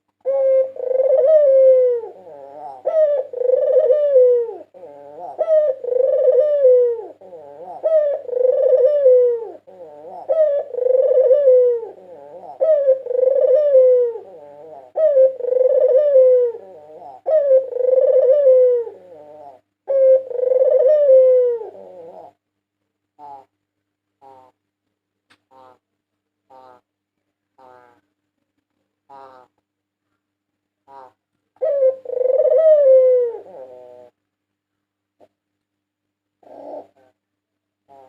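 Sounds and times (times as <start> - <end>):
dove cooing: 0.0 - 22.4, 23.2 - 23.5, 24.2 - 24.6, 30.8 - 34.2, 36.4 - 37.2.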